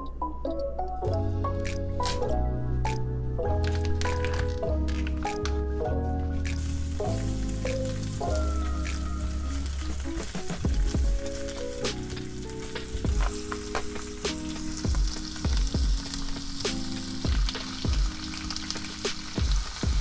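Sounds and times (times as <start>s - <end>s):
meat sizzling in a frying pan: 6.5s - 20.0s.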